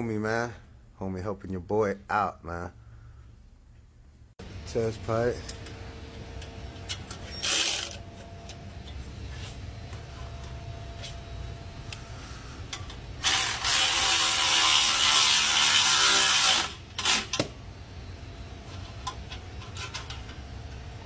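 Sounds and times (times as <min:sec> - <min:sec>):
ratchet wrench clicking rapidly: 0:07.4 - 0:08.0.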